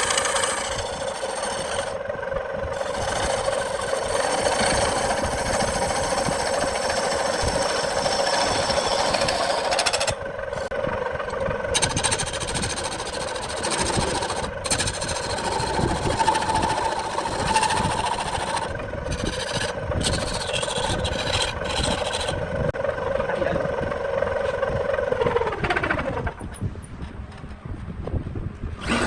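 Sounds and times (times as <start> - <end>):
wood lathe humming: 0.0 - 26.6, 28.8 - 29.0.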